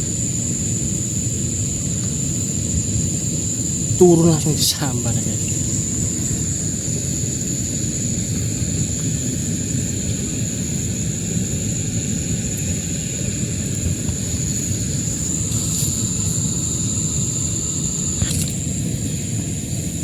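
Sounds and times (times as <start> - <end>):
wind rumbling on microphone: 0.0 - 4.0
high-pitched whine: 0.0 - 20.0.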